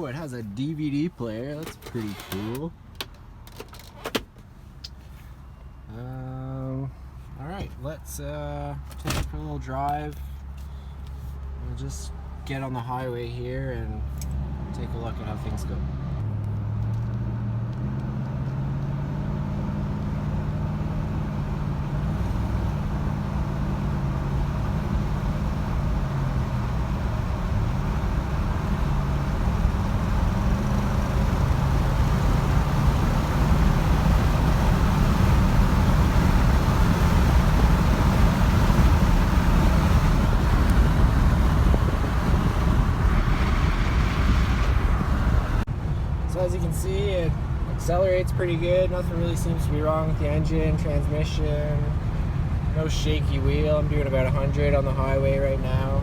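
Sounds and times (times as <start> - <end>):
road and tyre noise: 0.0 - 56.0
truck engine accelerating: 13.9 - 56.0.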